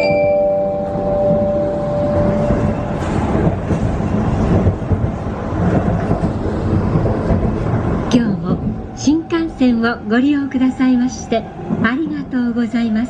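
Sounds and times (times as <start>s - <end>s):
onboard chime: 0.0s - 2.4s
train rumble inside carriage: 0.0s - 13.0s.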